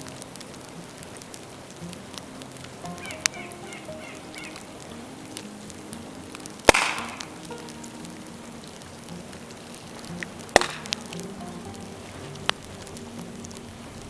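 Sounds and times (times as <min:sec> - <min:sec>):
bamboo cracking in fire: 0:00.0 - 0:14.0
fire crackling: 0:00.0 - 0:14.0.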